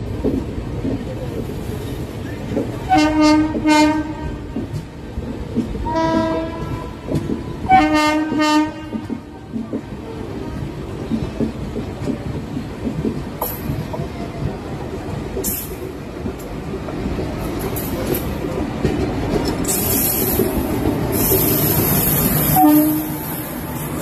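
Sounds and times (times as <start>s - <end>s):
wheels rumbling on rail: 0.0s - 24.0s
hissing rush: 19.6s - 24.0s.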